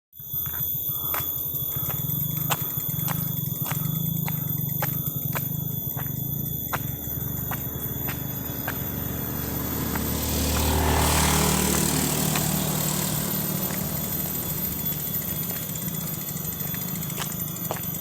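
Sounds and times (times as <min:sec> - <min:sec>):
vehicle engine running: 0:00.2 - 0:18.0.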